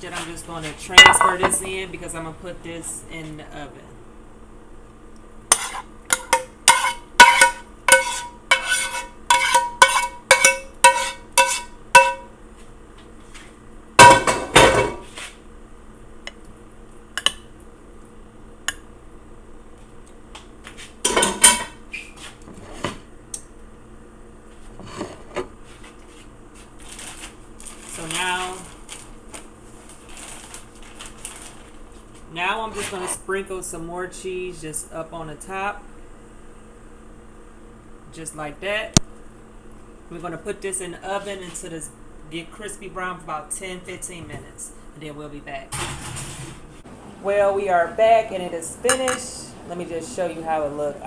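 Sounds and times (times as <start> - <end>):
utensil scraping clatter: 5.5 - 12.2
utensil clinking against pan: 5.5 - 12.3.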